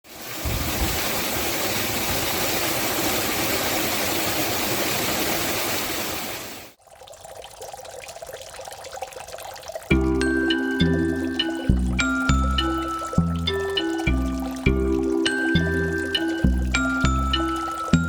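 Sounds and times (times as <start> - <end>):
water trickling: 6.7 - 18.0
stream water rushing: 9.9 - 18.0.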